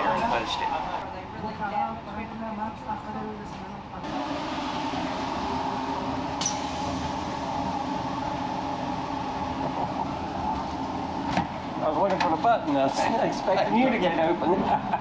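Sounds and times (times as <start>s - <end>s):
rail car rumble and rattle: 0.0s - 15.0s
steady hum tones: 4.1s - 12.0s.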